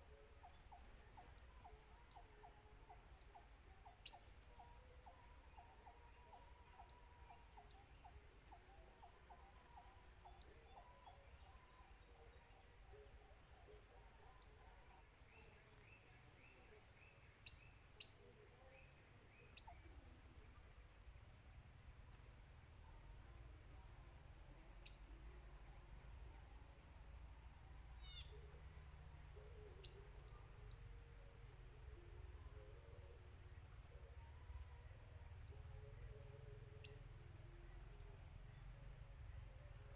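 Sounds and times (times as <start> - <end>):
insects trilling: 0.0 - 39.9
faint bird chirps: 0.4 - 20.7, 27.9 - 31.0.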